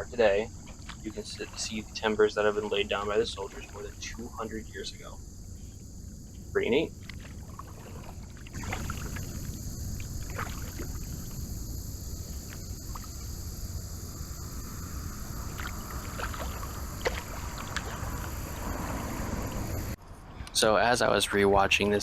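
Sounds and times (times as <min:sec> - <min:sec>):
paddle splashes and drips: 0:00.6 - 0:04.5, 0:05.7 - 0:13.7, 0:14.4 - 0:20.0.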